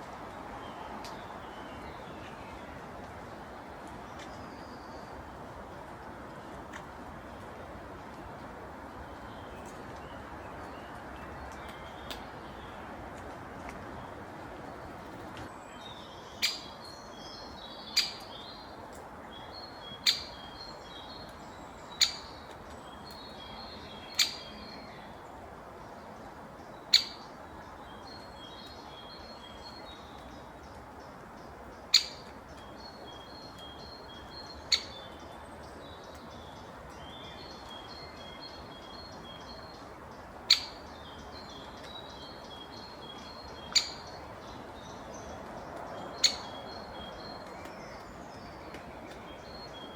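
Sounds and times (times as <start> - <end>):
small birds chirping: 14.8 - 49.9.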